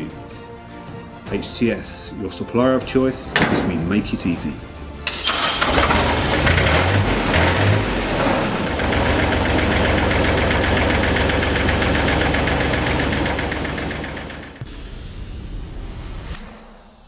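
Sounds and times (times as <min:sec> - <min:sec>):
engine idling: 0:04.5 - 0:14.6.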